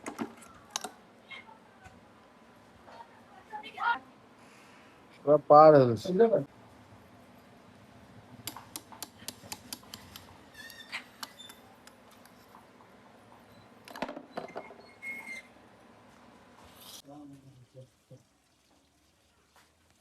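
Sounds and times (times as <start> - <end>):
high squeak: 10.5 - 11.6, 14.4 - 15.6.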